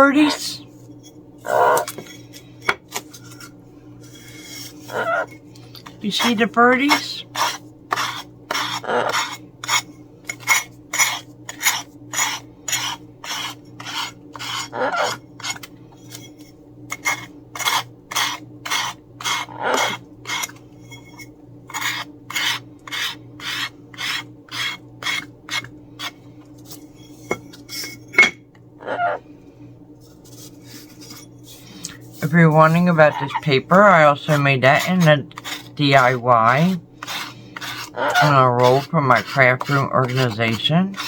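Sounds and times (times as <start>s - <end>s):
sanding block rasping: 7.4s - 9.8s, 11.0s - 15.6s, 21.8s - 25.7s, 32.0s - 41.0s.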